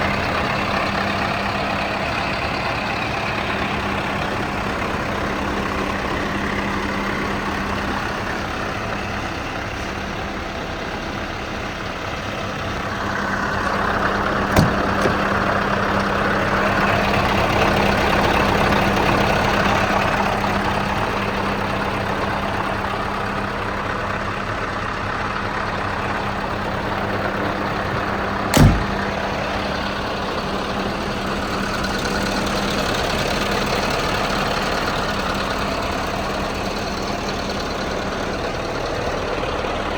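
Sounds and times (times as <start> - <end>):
diesel engine idling: 0.0 - 39.9
short sharp knocks: 14.5 - 15.4.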